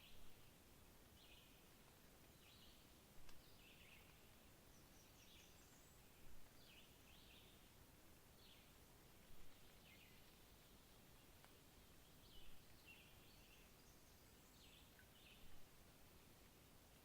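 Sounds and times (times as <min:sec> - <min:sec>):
background hiss: 0:00.0 - 0:17.0
faint click: 0:03.2 - 0:04.2.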